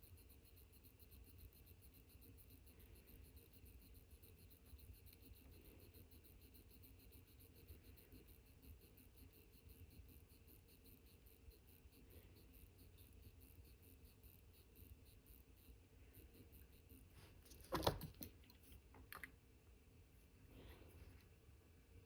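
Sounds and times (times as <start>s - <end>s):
mechanical watch ticking: 0.0s - 17.0s.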